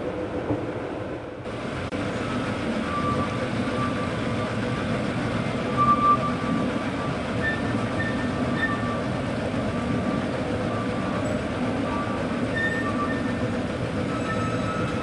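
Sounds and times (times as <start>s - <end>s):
train wheels rumbling on track: 0.0s - 15.0s
high-pitched wheel squeals: 2.2s - 4.2s, 5.7s - 9.0s, 10.0s - 15.0s.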